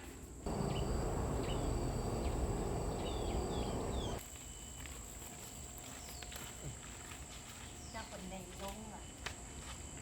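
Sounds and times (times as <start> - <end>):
chirps falling in pitch: 0.5 - 4.2
low rumbling noise: 0.5 - 4.2.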